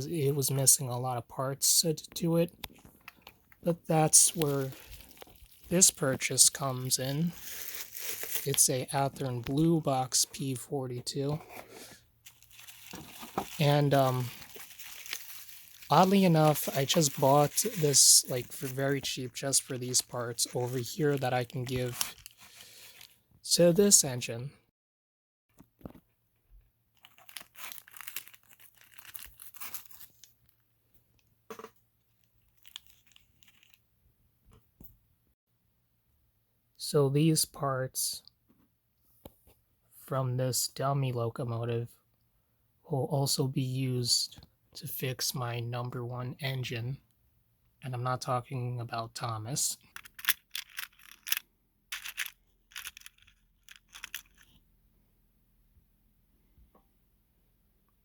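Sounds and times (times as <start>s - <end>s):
plastic parts rustling: 2.6s - 10.2s, 11.2s - 23.2s, 27.0s - 30.3s, 32.4s - 33.8s, 49.9s - 54.6s
plastic parts clicking and scraping: 49.9s - 54.6s.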